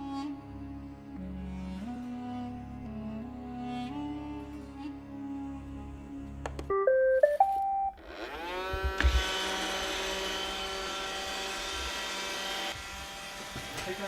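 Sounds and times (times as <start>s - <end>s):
stepped beeps chime: 6.7s - 8.0s
vacuum motor whine: 8.0s - 14.0s.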